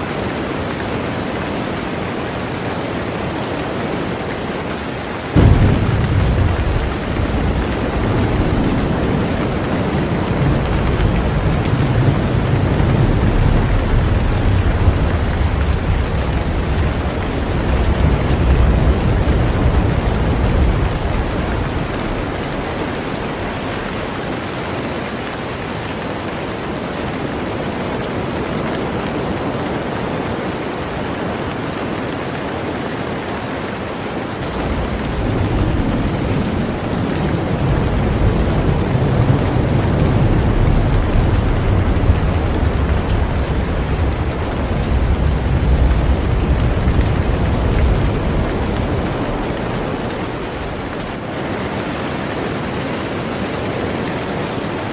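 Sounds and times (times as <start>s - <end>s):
heavy rain on a boat: 0.0s - 54.9s
deep low rumble: 5.4s - 23.0s.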